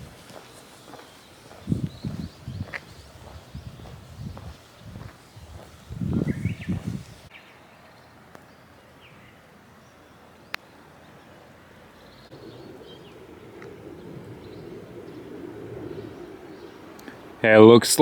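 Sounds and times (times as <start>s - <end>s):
high bird chirps: 0.4s - 7.6s.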